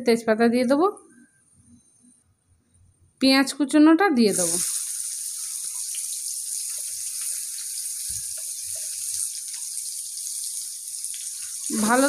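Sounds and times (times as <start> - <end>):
onions sizzling in oil: 4.3 - 12.0.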